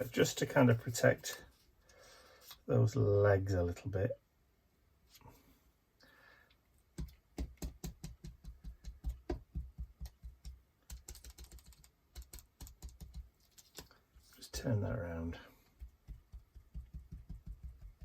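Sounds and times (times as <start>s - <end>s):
sponge dabbing paint on paper: 6.9s - 14.7s, 15.5s - 18.0s.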